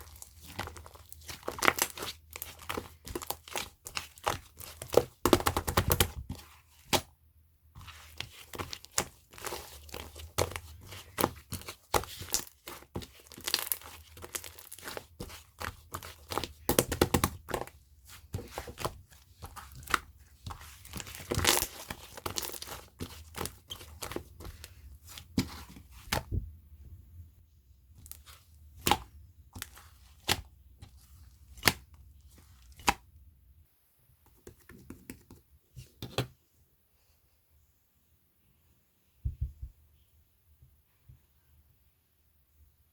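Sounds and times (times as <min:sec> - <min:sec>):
slime squished by hand: 0:00.0 - 0:07.1.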